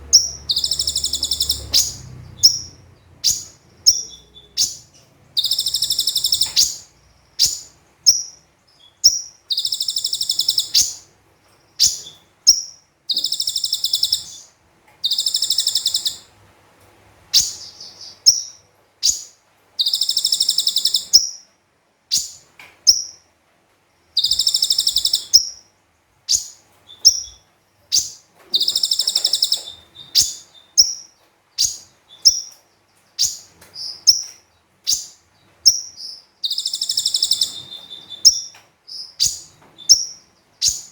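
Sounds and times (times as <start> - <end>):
bird buzzy trills: 0.0 - 8.4, 11.8 - 16.3, 24.2 - 25.6, 26.3 - 32.6, 35.7 - 40.9.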